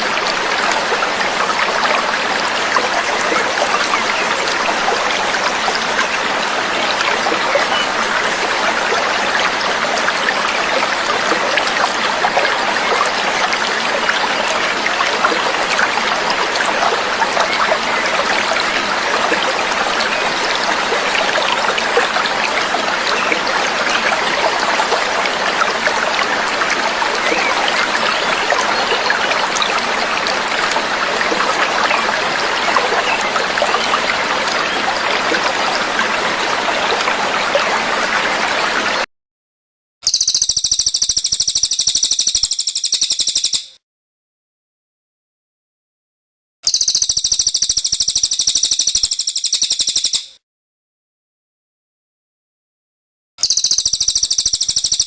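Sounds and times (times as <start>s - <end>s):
babbling stream water: 0.0s - 39.1s.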